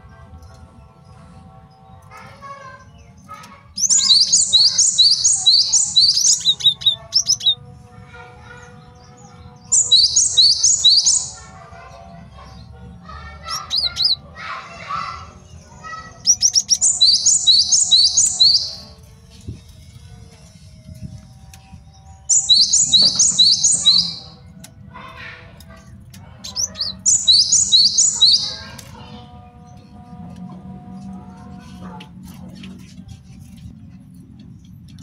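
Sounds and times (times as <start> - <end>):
soft bird sounds: 0.0 - 7.7, 8.4 - 35.0
bird singing high sweeping notes: 2.2 - 7.8, 8.5 - 11.6, 13.4 - 24.5, 26.4 - 31.1.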